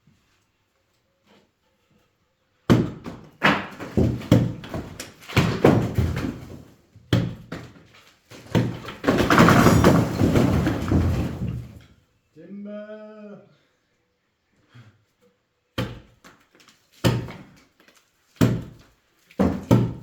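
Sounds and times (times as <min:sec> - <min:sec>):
masonry crashing down: 0:02.7 - 0:11.9, 0:19.4 - 0:20.0
plank thudding against wall: 0:02.7 - 0:11.9, 0:15.8 - 0:16.3, 0:17.0 - 0:17.6, 0:18.4 - 0:20.0.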